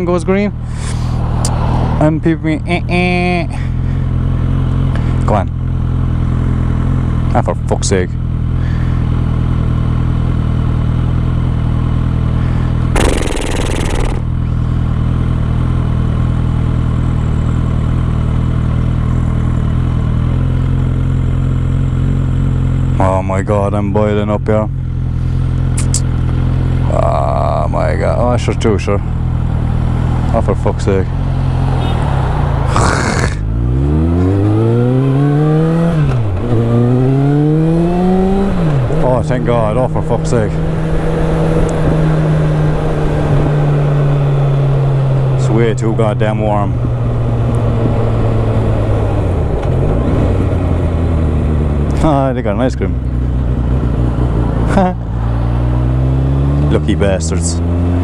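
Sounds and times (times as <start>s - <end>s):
motorcycle engine idling: 12.4s - 23.2s
loud rush of noise: 13.0s - 14.5s
motorcycle engine pulling away: 13.0s - 14.7s, 31.2s - 45.3s.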